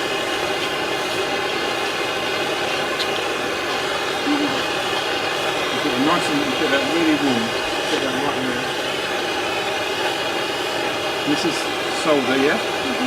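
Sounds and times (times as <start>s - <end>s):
blowtorch flame hissing: 0.0s - 13.0s.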